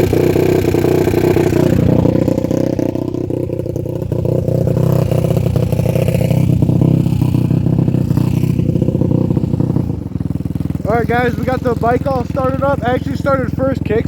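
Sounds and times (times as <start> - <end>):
dirt bike engine idling: 0.0 - 14.0.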